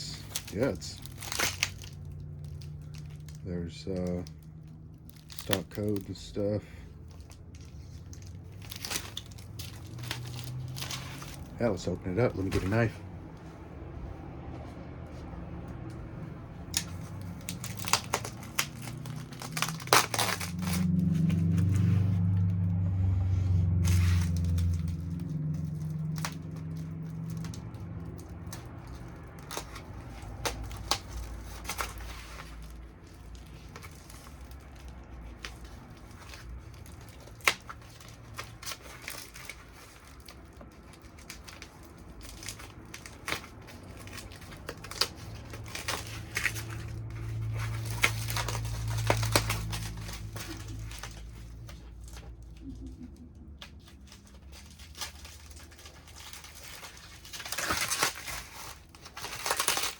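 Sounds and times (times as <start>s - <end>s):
packing wrap crinkling: 0.0s - 14.2s, 15.7s - 22.8s, 23.5s - 59.9s.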